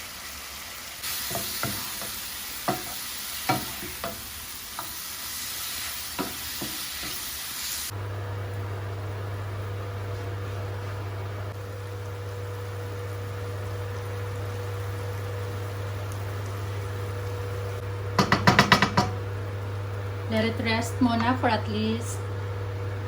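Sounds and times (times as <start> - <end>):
food sizzling in a frying pan: 0.0 - 8.6, 9.3 - 23.0
spatula clacking against pan: 1.3 - 4.2, 18.2 - 19.2
steady low hum: 7.9 - 23.0.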